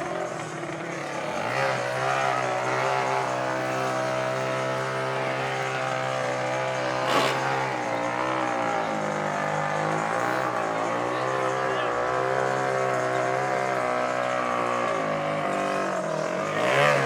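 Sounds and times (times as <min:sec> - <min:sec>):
racing engine at high revs: 0:00.0 - 0:17.0.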